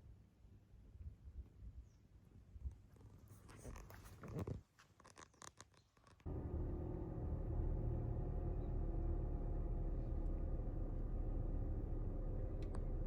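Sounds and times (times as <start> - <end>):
vehicle engine running: 6.3 - 13.0.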